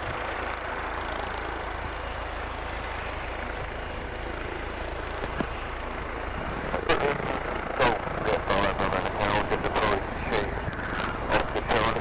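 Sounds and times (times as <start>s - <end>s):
helicopter rotor and engine: 0.0s - 12.0s.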